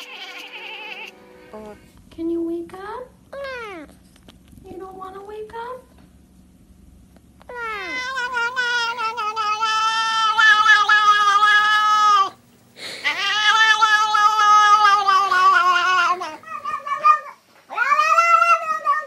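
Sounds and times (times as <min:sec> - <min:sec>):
cat yowling: 0:00.0 - 0:01.1, 0:07.5 - 0:12.4, 0:13.0 - 0:19.0.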